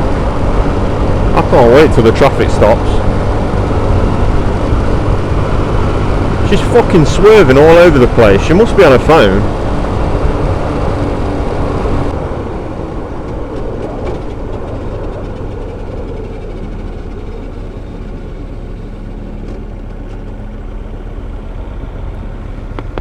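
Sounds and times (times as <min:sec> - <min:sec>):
wind and road noise: 0:00.0 - 0:23.0
motorcycle engine running: 0:02.8 - 0:06.8.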